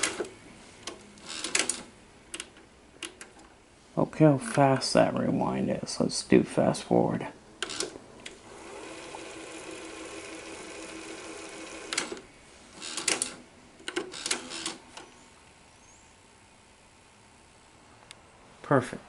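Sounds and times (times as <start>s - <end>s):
mechanical clicks and clunks: 0.0s - 3.5s, 7.6s - 8.4s, 11.8s - 12.2s, 12.8s - 15.1s
tape machine motor whirring: 7.6s - 15.2s.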